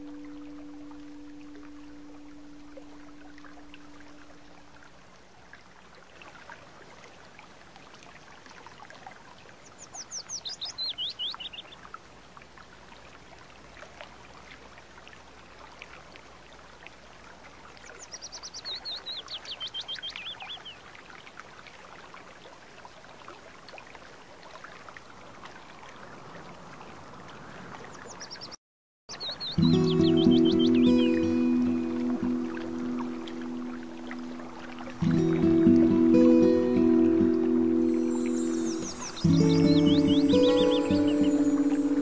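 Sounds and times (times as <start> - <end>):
songbird singing: 0.0 - 4.8, 9.6 - 11.9, 17.8 - 20.9, 27.4 - 42.0
mountain stream running softly: 0.0 - 42.0.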